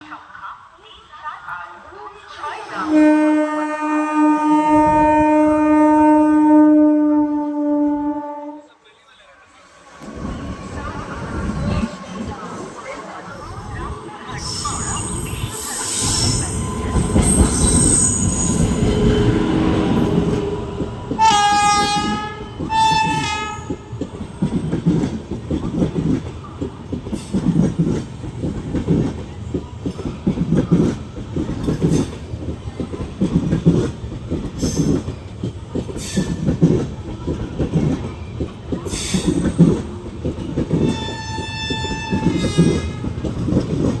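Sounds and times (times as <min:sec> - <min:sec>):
locomotive horn blasts: 0:02.8 - 0:08.7, 0:16.0 - 0:23.9, 0:40.8 - 0:43.2.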